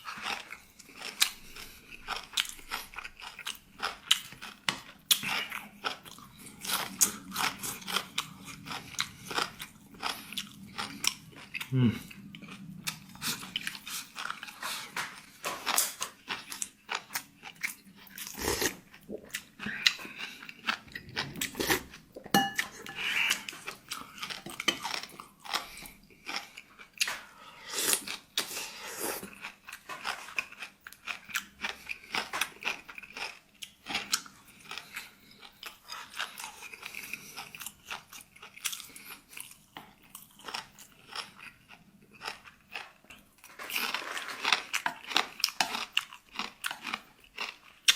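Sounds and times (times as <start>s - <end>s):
crunching and chewing food: 0.0s - 47.9s.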